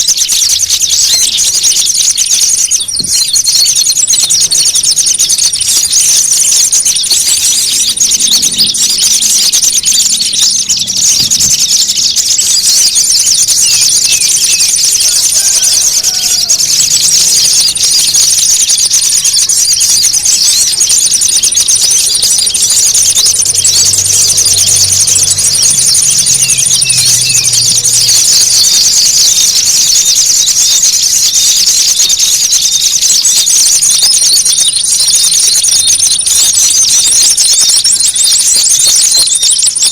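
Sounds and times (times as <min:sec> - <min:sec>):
small birds agitated calls: 0:00.0 - 0:39.9
thin high steady tone: 0:03.2 - 0:30.6.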